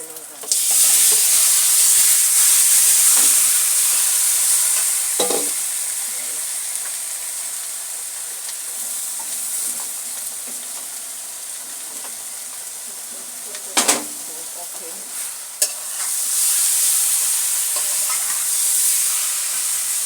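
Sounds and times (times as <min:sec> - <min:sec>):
food sizzling in hot oil: 0:00.0 - 0:20.0
utensil clanking against pot: 0:05.2 - 0:05.6.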